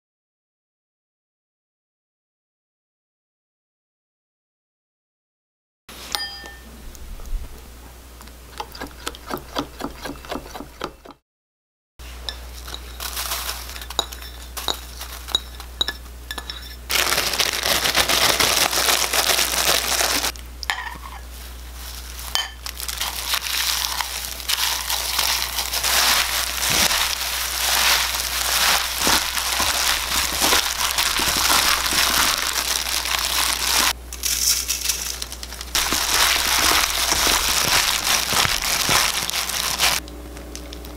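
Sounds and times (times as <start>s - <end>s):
seaweed crushed in plastic bag: 12.9s - 15.4s, 16.9s - 20.4s, 21.3s - 40.9s.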